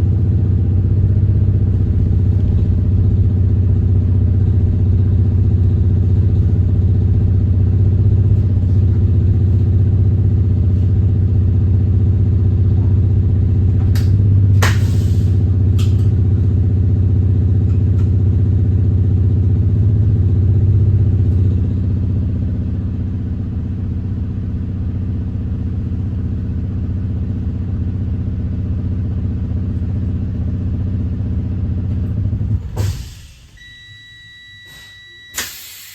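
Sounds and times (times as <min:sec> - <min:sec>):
bus diesel engine running: 0:00.0 - 0:35.9
air hiss: 0:32.8 - 0:33.6, 0:34.7 - 0:35.9.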